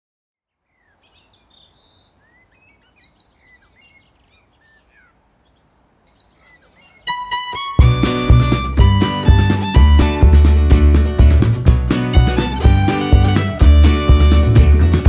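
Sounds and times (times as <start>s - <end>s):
birds chirping: 0.5s - 15.0s.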